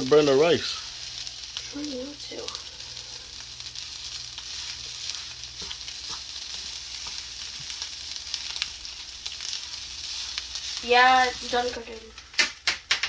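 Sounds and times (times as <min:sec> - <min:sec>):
rice sizzling in a pan: 0:00.0 - 0:12.4
utensil scraping and tapping: 0:05.5 - 0:07.7.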